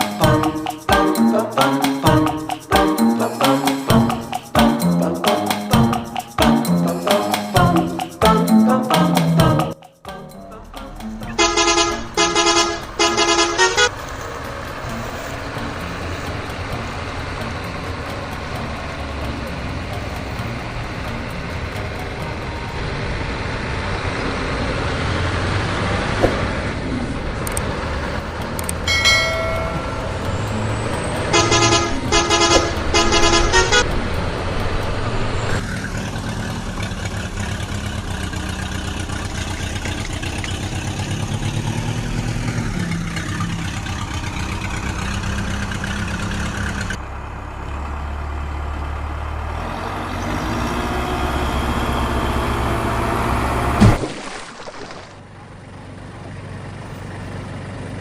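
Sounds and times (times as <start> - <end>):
truck engine running: 0.0 - 54.0, 55.1 - 58.0
truck horn honking: 11.2 - 17.6, 28.9 - 34.1.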